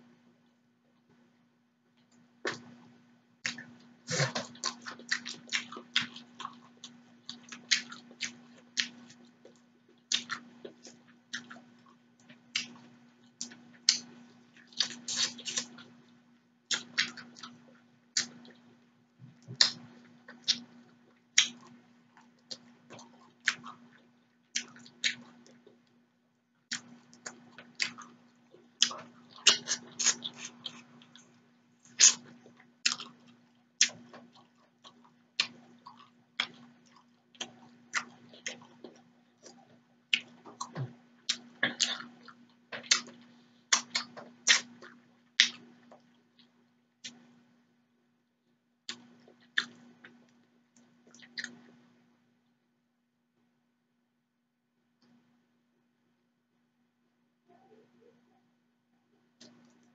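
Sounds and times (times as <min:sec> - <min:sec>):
faint steady hum: 0:00.0 - 0:59.9
wet chewing: 0:16.7 - 0:18.7, 0:26.7 - 0:47.2.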